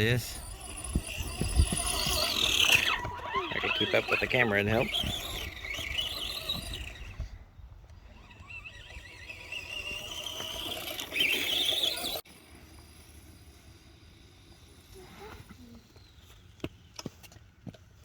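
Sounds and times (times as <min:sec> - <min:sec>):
rc truck motor whining: 0:00.0 - 0:16.6.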